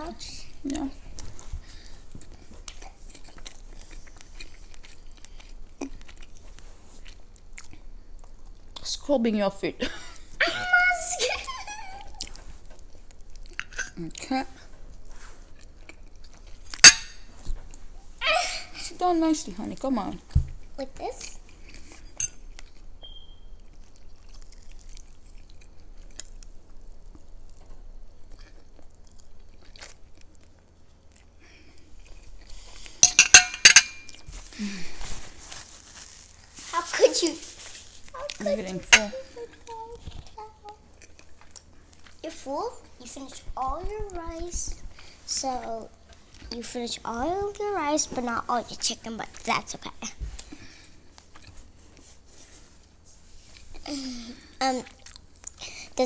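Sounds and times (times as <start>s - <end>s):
person chewing: 0.6s - 8.9s, 11.9s - 14.3s, 15.0s - 17.8s, 21.5s - 33.1s, 33.7s - 36.7s, 39.0s - 46.6s, 48.8s - 56.0s.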